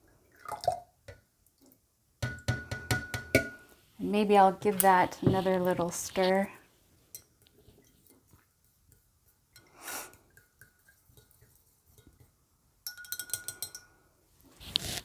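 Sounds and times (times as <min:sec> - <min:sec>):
faint taps: 0:04.6 - 0:06.0
stir stick clinking against glass: 0:12.8 - 0:13.9.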